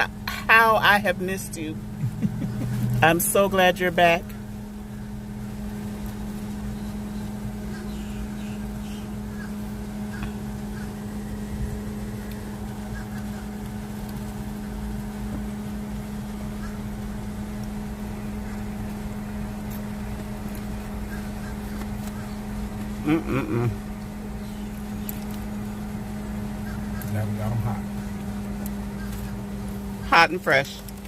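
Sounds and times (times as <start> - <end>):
car idling hum: 0.0 - 31.0.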